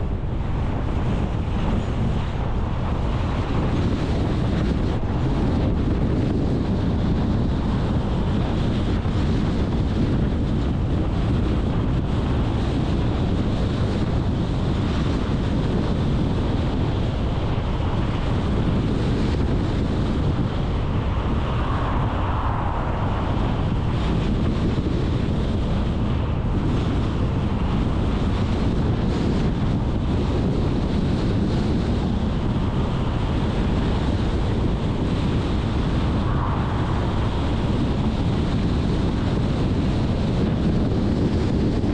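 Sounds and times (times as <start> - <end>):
wind buffeting microphone: 0.0 - 41.9
car engine and road noise: 16.7 - 28.9, 31.6 - 40.3.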